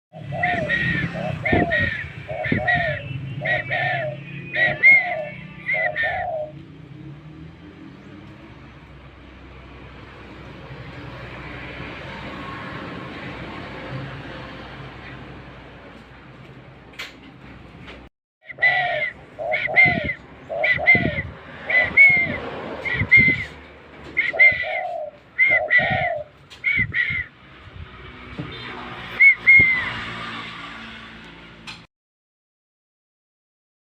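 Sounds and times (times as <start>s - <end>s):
dove cooing: 0.1s - 6.6s, 18.5s - 27.2s.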